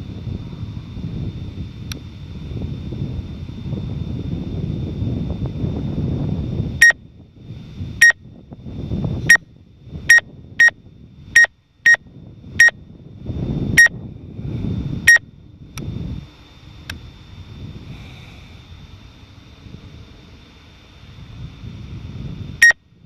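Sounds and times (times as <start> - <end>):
wind buffeting microphone: 0.0 - 11.4, 12.0 - 23.0
short electronic beeps: 11.4 - 12.0.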